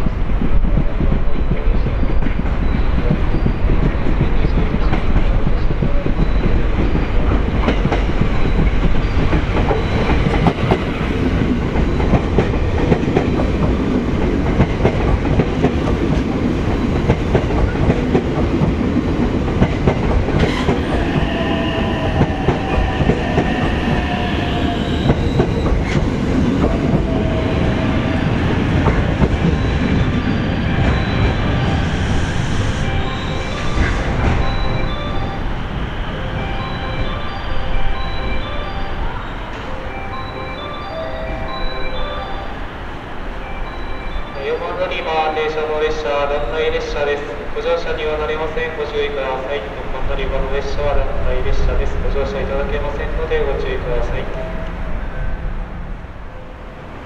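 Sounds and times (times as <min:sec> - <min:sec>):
electric train rumbling: 0:00.0 - 0:57.0
high-pitched squeal: 0:20.4 - 0:42.8.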